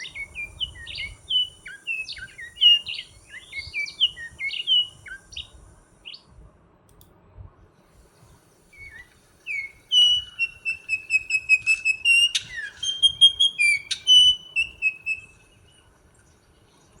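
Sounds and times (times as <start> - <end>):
bird whistling: 0.0 - 5.5, 8.7 - 15.8
harsh bird calls: 0.0 - 5.5, 8.8 - 15.8.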